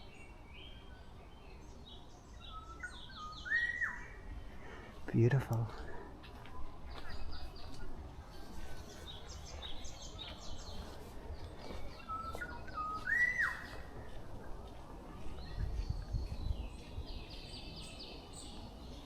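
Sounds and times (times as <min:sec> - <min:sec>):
whistled bird phrase: 0:02.5 - 0:04.1, 0:12.1 - 0:13.7.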